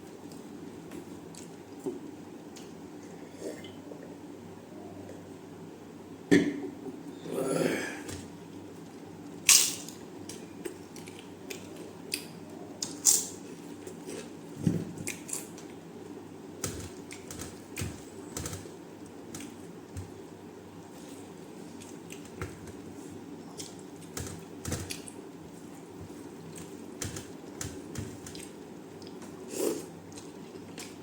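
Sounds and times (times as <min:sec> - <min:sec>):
chewing food clicks and crunches: 0:09.9 - 0:13.0.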